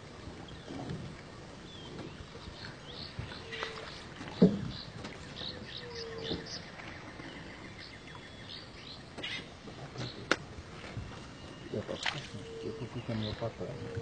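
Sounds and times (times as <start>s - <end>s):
bird chirps and calls: 2.6s - 6.7s, 7.3s - 10.2s.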